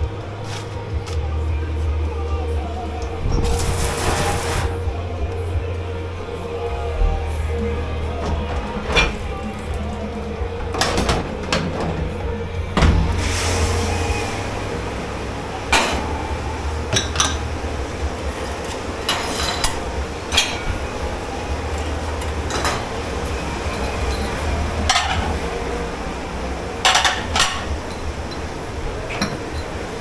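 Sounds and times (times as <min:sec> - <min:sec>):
low machine hum: 0:00.0 - 0:30.0
dishes and cutlery clattering: 0:08.2 - 0:12.9, 0:15.7 - 0:25.7, 0:26.7 - 0:30.0.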